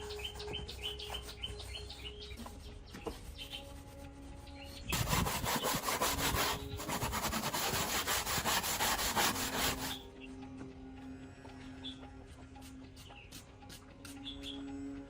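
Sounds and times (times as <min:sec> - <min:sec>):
hand tool scraping: 0:04.9 - 0:10.0.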